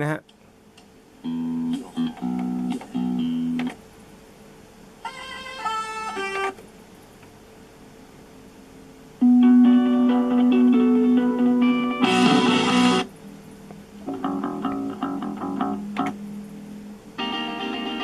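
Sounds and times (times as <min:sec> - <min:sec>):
guitar music through small speakers: 0:01.2 - 0:03.8, 0:05.0 - 0:06.6, 0:09.2 - 0:13.1, 0:13.7 - 0:18.0.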